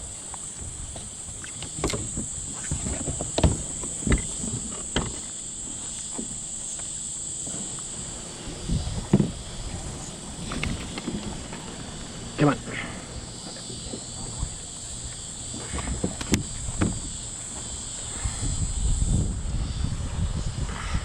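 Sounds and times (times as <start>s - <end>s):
high-pitched insect buzz: 0.0s - 21.0s
sharp knocks: 15.6s - 17.2s.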